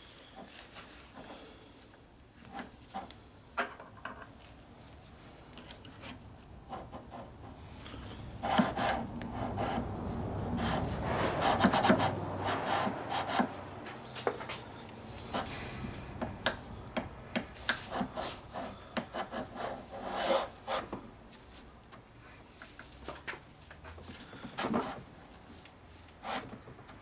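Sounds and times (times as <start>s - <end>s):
small clicks of parts handled: 5.5s - 6.2s.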